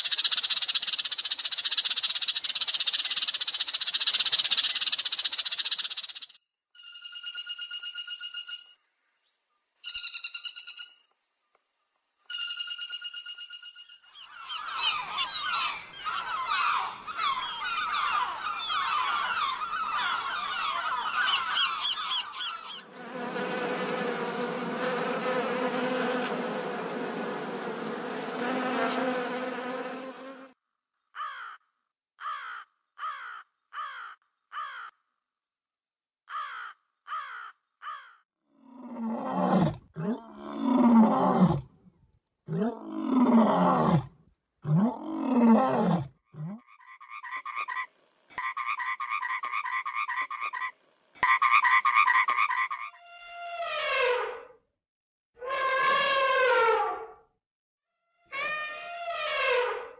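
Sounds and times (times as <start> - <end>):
gulls and geese calling: 14.2 - 22.8
wasps buzzing: 22.9 - 30.6.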